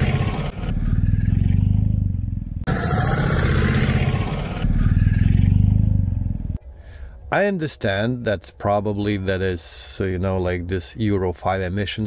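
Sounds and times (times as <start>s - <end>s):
motorcycle engine pulling away: 0.0s - 6.6s.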